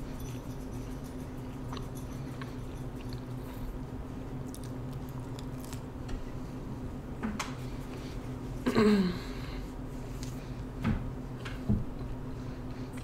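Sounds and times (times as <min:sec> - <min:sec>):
steady low hum: 0:00.0 - 0:13.0
chewing pizza: 0:00.3 - 0:06.1.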